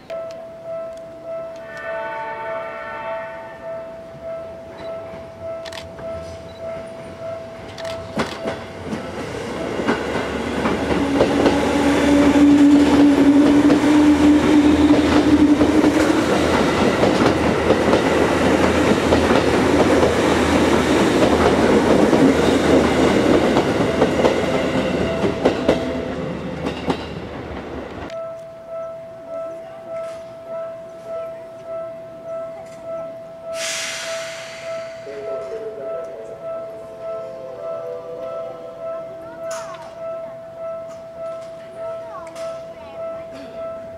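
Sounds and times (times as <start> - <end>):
train wheels clattering: 5.0 - 28.1.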